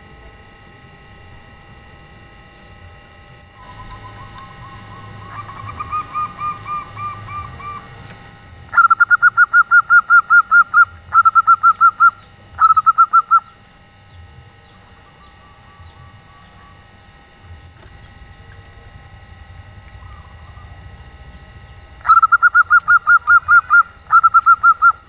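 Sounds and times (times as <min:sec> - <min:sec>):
dove cooing rapidly: 0:03.6 - 0:13.5, 0:14.6 - 0:16.9, 0:19.9 - 0:21.0, 0:21.9 - 0:25.0.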